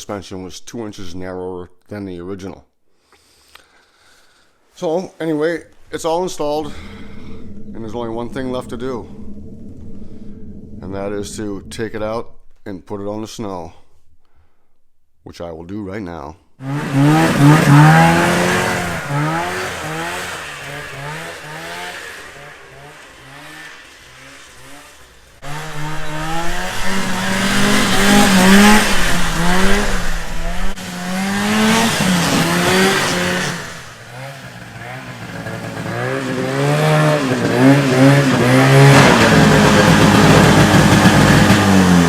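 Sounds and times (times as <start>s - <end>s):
snowmobile engine revving: 5.7s - 13.9s, 16.6s - 42.0s.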